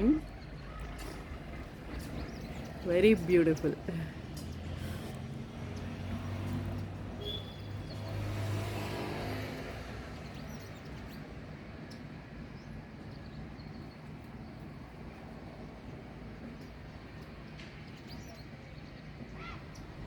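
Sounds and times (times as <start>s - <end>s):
passing vehicle engine hum: 0.0s - 11.8s.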